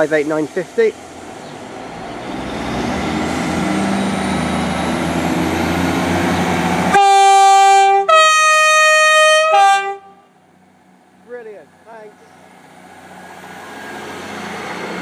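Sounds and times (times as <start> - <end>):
diesel train engines revving: 0.0 - 15.0
loud train horn: 6.9 - 10.3.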